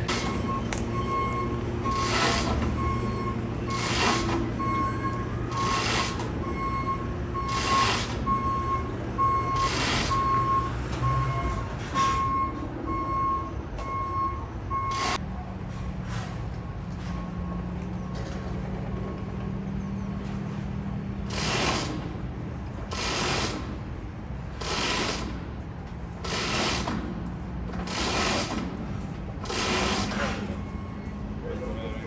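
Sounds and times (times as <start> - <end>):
reversing alarm beeping: 0.0 - 15.2, 29.5 - 32.0.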